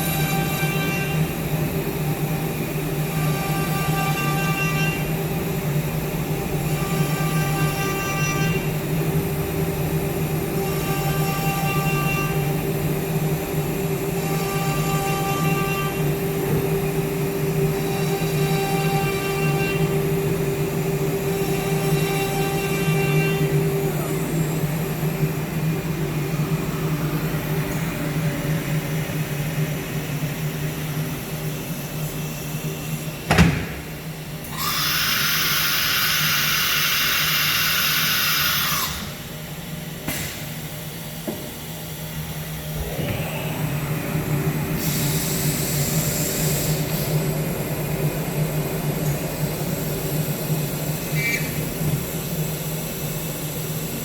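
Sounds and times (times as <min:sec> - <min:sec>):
cnc router machine hum: 0:00.0 - 0:54.0
sharp clunk: 0:33.3 - 0:33.9.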